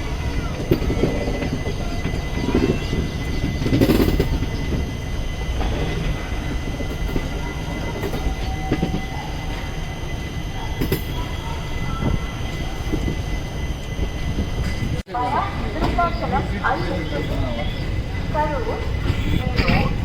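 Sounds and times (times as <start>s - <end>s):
wheels clacking over track: 0.0s - 13.2s, 14.6s - 20.0s
train coach rumble: 0.0s - 20.0s.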